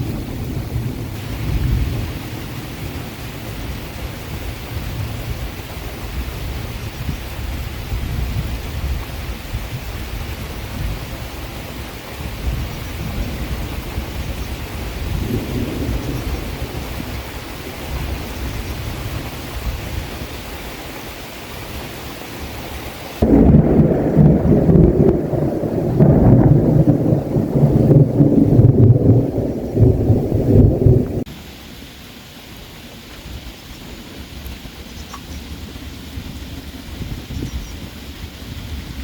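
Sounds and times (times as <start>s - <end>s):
steady rain: 0.0s - 39.0s
deep rumble: 23.2s - 31.3s
low rumble: 23.2s - 31.3s.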